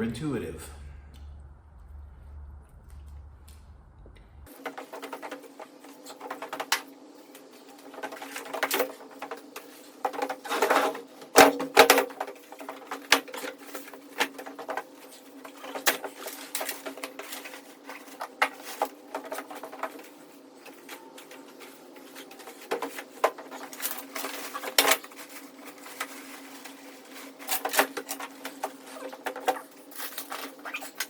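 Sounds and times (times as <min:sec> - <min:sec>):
steady low hum: 0:00.0 - 0:04.5.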